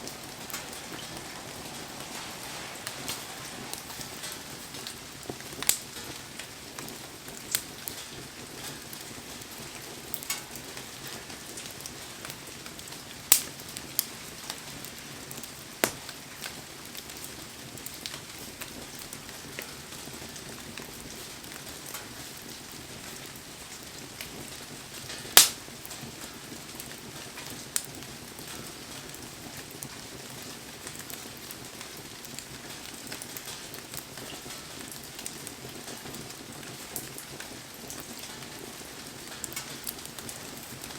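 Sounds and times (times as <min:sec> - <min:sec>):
heavy rain hissing: 0:00.0 - 0:08.6
wood fire crackling and popping: 0:00.0 - 0:40.9.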